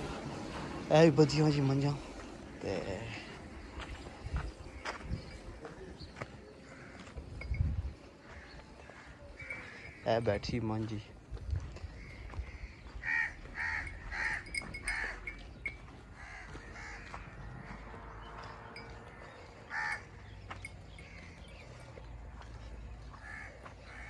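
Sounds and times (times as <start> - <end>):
bird calling: 11.8 - 17.9, 18.8 - 24.0.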